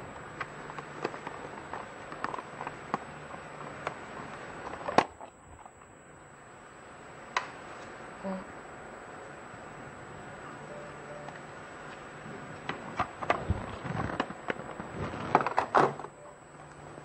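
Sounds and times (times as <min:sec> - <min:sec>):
plastic blister pack crackling: 0:12.6 - 0:16.0.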